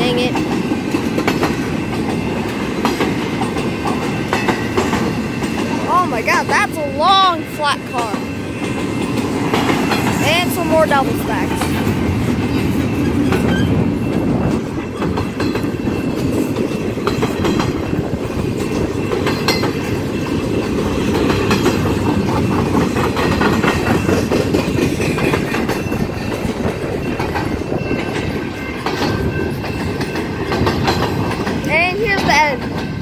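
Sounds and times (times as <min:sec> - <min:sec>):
freight train wheels rumbling: 0:00.0 - 0:33.0
wheels clacking over rail joints: 0:00.0 - 0:33.0.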